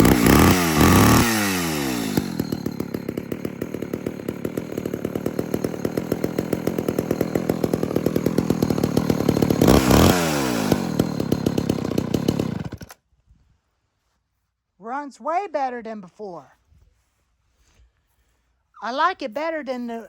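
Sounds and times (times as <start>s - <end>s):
chainsaw idling and revving: 0.0s - 13.0s.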